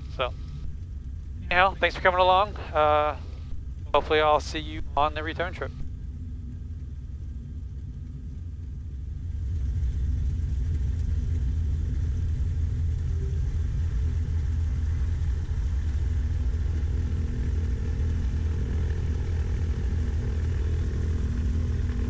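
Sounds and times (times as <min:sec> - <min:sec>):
piston aircraft engines rumbling: 0:00.0 - 0:22.0.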